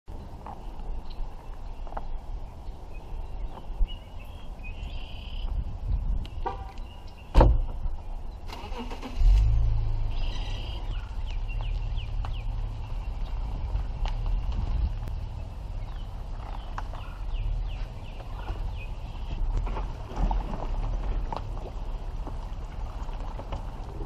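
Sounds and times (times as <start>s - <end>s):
sharp thump: 7.3s - 7.8s
vehicle engine starting and running: 8.5s - 24.0s.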